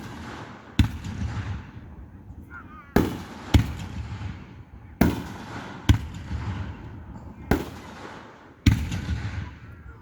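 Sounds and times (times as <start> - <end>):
fireworks bursting: 0.0 - 1.8, 5.0 - 6.8, 7.5 - 9.6.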